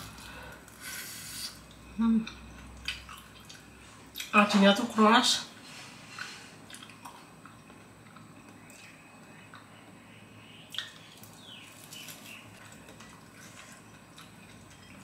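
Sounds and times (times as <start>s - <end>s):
chewing crunchy food: 2.3s - 4.3s, 6.1s - 9.7s, 10.7s - 15.0s.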